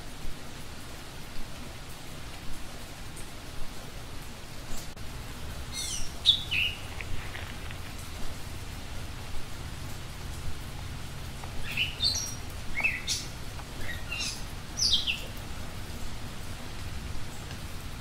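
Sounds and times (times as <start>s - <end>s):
steady hiss and low rumble: 0.0s - 18.0s
small birds chirping: 5.6s - 8.9s, 9.9s - 17.6s.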